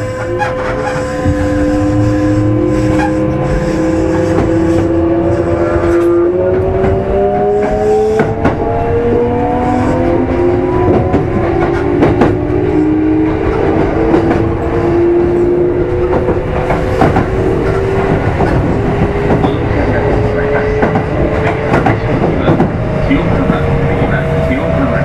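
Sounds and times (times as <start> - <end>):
steady train rumble: 0.0 - 25.0
train motor and gear whine: 0.0 - 25.0
wheels clicking over rail joints: 15.8 - 24.2.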